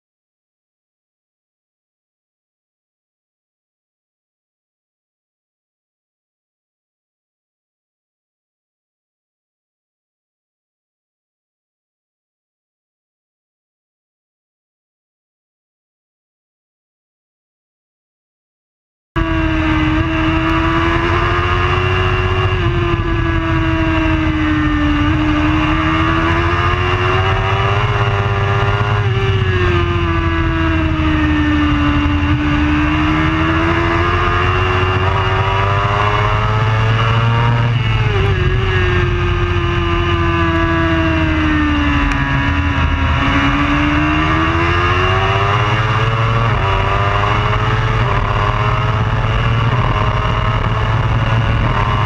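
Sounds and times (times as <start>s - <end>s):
motorcycle engine at high revs: 19.2s - 52.0s
wind and road noise: 19.2s - 52.0s.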